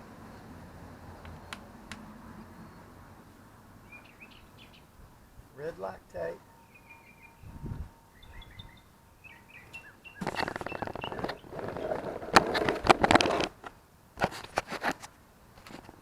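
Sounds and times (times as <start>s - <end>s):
faint birds chirping: 0.0s - 12.1s
hard objects rattling and clattering: 10.2s - 13.7s.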